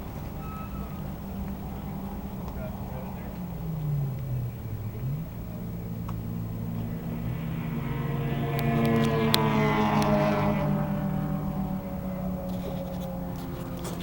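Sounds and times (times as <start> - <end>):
stock car engines running: 0.0 - 14.0.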